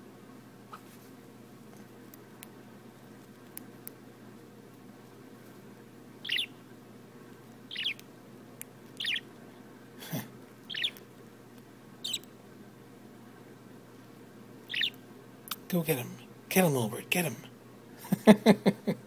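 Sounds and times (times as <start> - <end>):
bird chirping: 6.2 - 6.6, 7.7 - 8.0, 9.0 - 9.3, 10.7 - 11.0, 12.0 - 12.3, 14.6 - 15.0.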